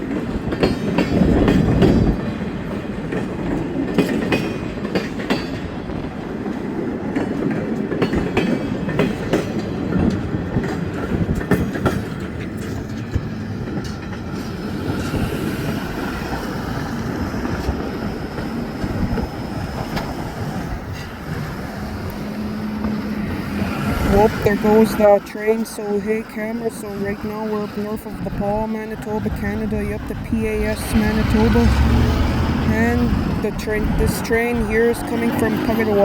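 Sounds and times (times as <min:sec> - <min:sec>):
wheels clicking over rail joints: 0:00.0 - 0:25.4
train wheels rumbling: 0:00.0 - 0:36.0.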